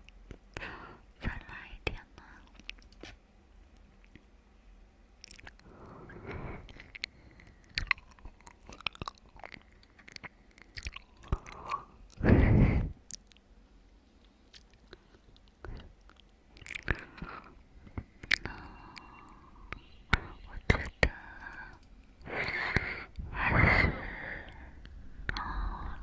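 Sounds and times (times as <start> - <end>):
chewing and wet mouth sounds: 2.2 - 3.2, 5.1 - 12.2, 13.0 - 13.5, 14.2 - 26.0.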